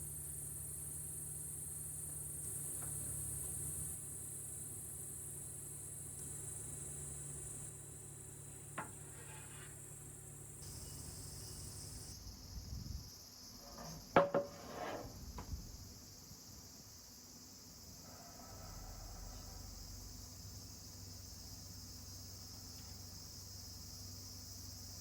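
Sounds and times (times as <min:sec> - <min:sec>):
steady high hiss: 0:03.8 - 0:18.2
objects knocking and clattering: 0:13.6 - 0:15.6.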